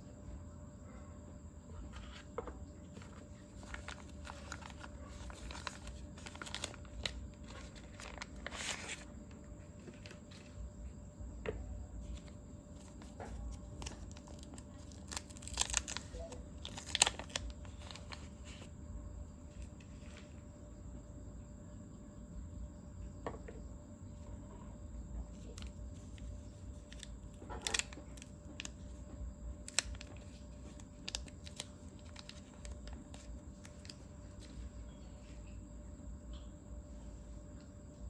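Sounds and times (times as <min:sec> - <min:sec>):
paper and plastic rustling: 0:01.8 - 0:11.0, 0:12.0 - 0:18.7, 0:25.3 - 0:35.4.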